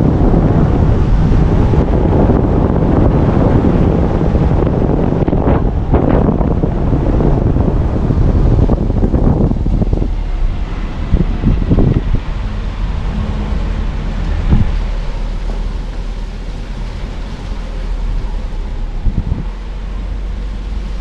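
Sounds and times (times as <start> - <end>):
road and wind noise: 0.0 - 21.0
swells of hiss: 14.9 - 21.0.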